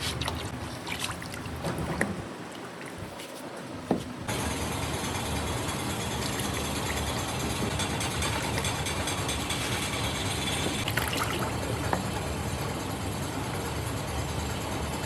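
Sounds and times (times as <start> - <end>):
motor running with hiss: 4.3 - 15.0.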